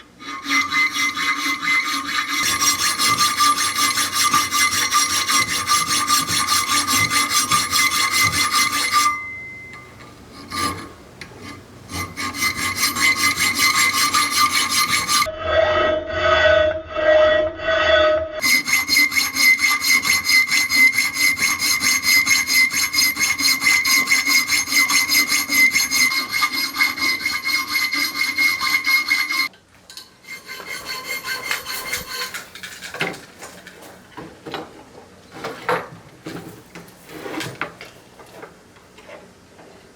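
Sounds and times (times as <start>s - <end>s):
rasping tool work: 0.0s - 15.3s, 18.4s - 29.5s, 30.2s - 33.2s
steady ringing tone: 8.8s - 10.1s.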